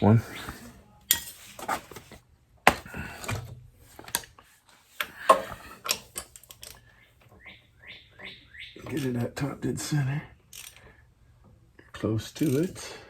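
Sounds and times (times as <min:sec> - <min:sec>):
tools and metal parts clinking: 0:01.1 - 0:01.8, 0:05.3 - 0:06.8, 0:12.4 - 0:12.9.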